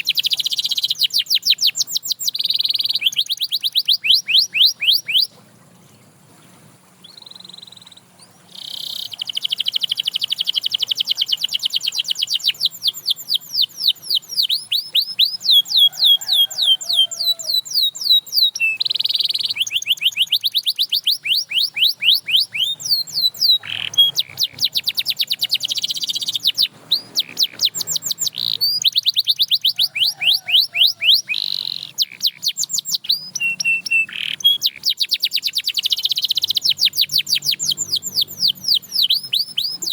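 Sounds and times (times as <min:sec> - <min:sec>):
canary singing: 0:00.0 - 0:05.4, 0:07.0 - 0:39.9.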